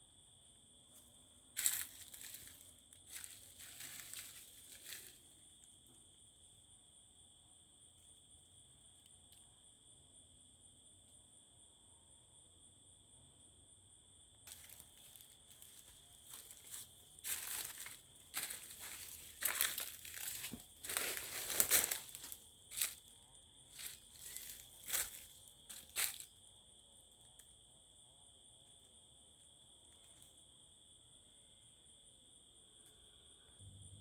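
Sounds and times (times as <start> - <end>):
insect chorus: 0.0 - 34.0
crinkling and rustling: 14.5 - 23.1, 23.7 - 26.3.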